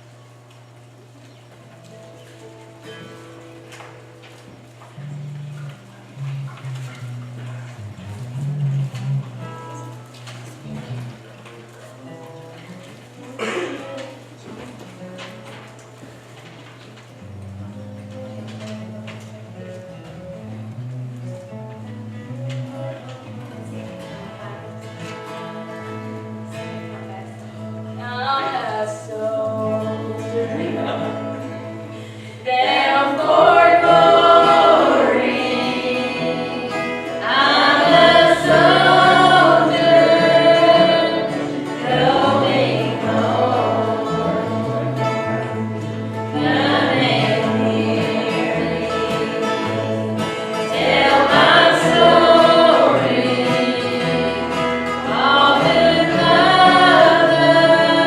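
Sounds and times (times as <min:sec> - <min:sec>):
instrumental accompaniment: 0:01.1 - 0:58.0
choir singing: 0:28.1 - 0:31.5, 0:32.4 - 0:58.0.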